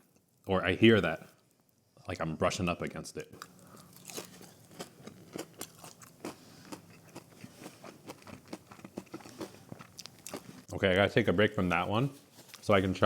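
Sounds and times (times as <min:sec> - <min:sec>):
chewing crunchy food: 0:03.4 - 0:10.7.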